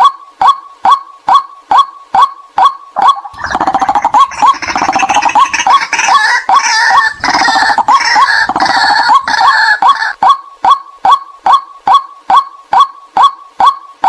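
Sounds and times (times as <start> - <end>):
bird kwak calls: 0.0 - 14.0
bird croaking grunts: 3.0 - 10.2.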